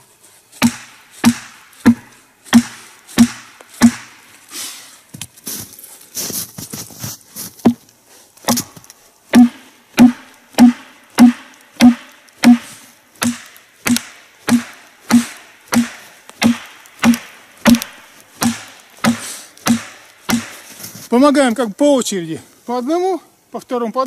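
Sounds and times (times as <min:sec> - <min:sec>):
wedges knocked into log: 0:00.6 - 0:04.2, 0:08.4 - 0:20.6.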